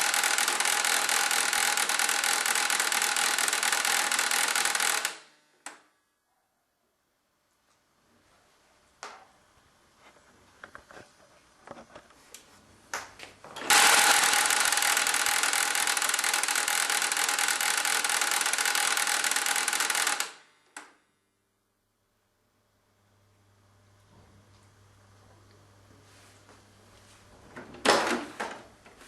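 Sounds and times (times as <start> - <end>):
printer mechanical noise with whine: 0.0 - 5.2, 13.6 - 20.9
printer clicks: 0.0 - 5.8, 13.6 - 20.9.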